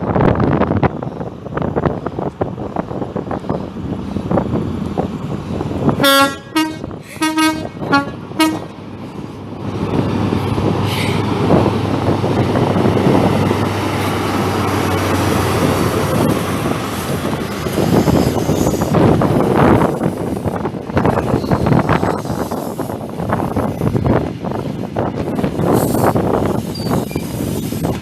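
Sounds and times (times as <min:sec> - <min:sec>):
train rumbling: 0:00.0 - 0:28.0
two-note train horn blasts: 0:06.0 - 0:08.7.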